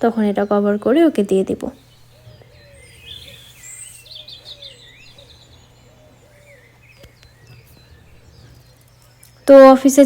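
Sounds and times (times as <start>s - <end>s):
birds chirping and calling: 0.0s - 10.0s
faint steady low hum: 0.0s - 10.0s.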